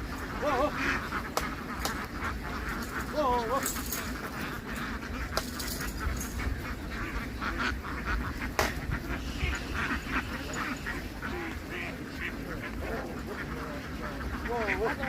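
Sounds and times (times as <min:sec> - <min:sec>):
ducks quacking: 0:00.0 - 0:15.0
sharp knock: 0:08.6 - 0:08.8.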